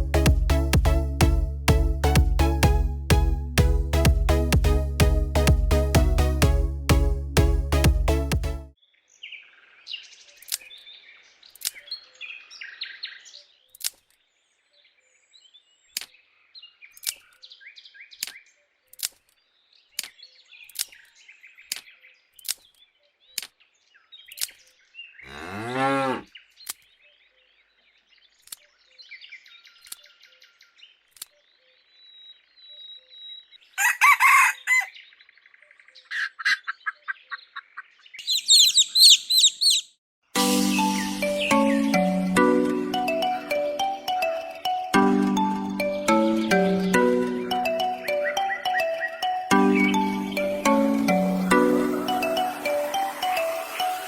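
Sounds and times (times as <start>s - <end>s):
chickens chirping and clucking: 38.2s - 39.9s.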